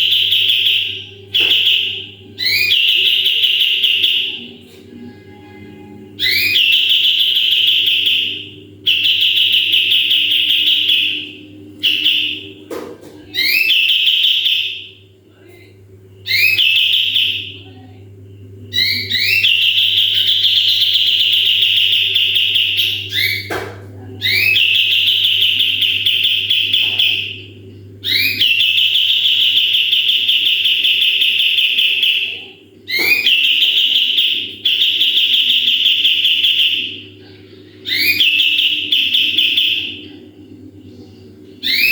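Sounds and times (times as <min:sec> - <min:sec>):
songbird buzzy trill song: 0:00.0 - 0:04.5, 0:06.2 - 0:12.6, 0:13.3 - 0:15.0, 0:16.0 - 0:17.6, 0:18.3 - 0:23.5, 0:24.2 - 0:32.3, 0:37.8 - 0:40.1, 0:41.6 - 0:41.9
steady low hum: 0:00.0 - 0:41.9.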